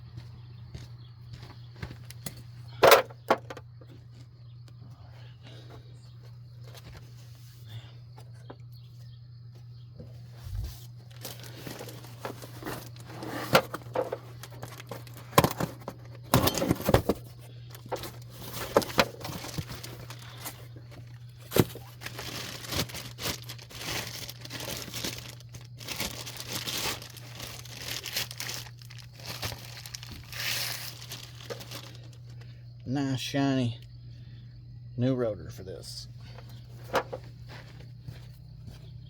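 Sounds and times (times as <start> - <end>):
steady low hum: 0.0 - 39.0
packaging crinkling and tearing: 11.0 - 32.4.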